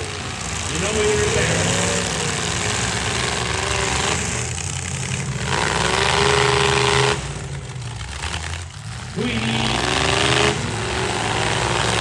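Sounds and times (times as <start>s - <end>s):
truck engines revving hard: 0.0s - 12.0s.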